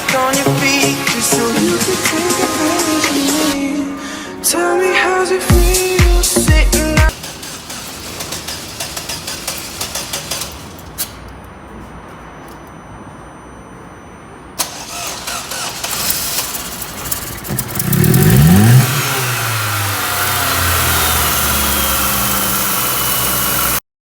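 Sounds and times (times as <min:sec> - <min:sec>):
car engine revving and idling: 0:05.5 - 0:10.8, 0:14.6 - 0:23.8
starter motor cranking: 0:05.6 - 0:11.3, 0:14.6 - 0:23.8.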